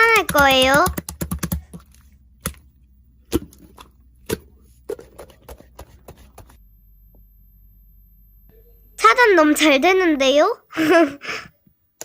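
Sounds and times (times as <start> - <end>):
computer keyboard clicks: 0.0 - 2.6.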